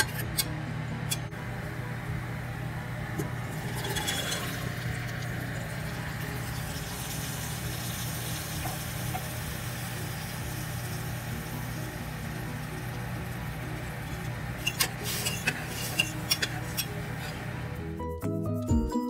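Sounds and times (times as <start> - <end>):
steady low hum: 0.0 - 18.0
chickpeas sizzling in oil: 3.4 - 17.7
spatula stirring: 14.1 - 17.6.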